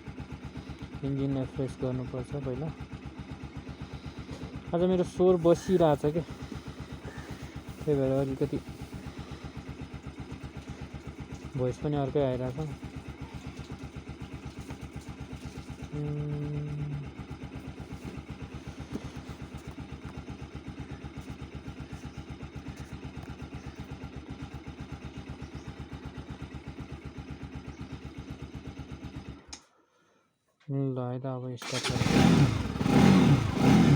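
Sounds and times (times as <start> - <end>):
motorcycle engine idling: 0.0 - 30.2, 31.6 - 33.9
short steady hum: 5.4 - 11.0.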